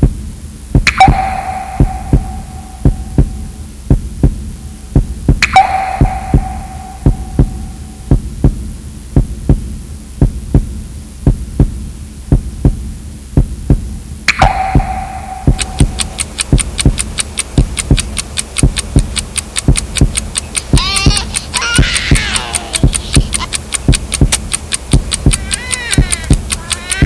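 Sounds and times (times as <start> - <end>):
fast high ticking: 0.0 - 12.8, 13.4 - 27.0
low heartbeat-like thump: 0.0 - 20.8, 22.8 - 25.4
sharp hit with ringing tone: 14.3 - 16.0.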